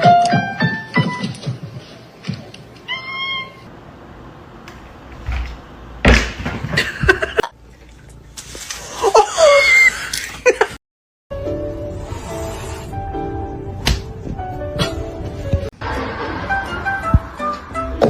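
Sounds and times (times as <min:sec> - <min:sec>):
cat meowing: 0:02.9 - 0:03.7.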